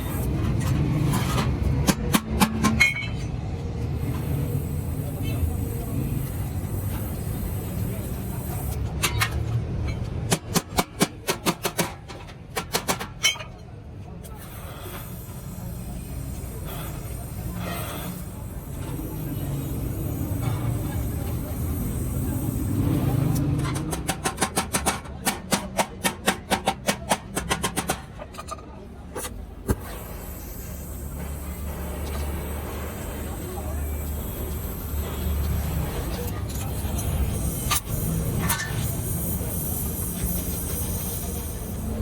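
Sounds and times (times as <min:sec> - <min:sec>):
hammer blows on sheet steel: 0:00.0 - 0:03.3, 0:23.2 - 0:28.2.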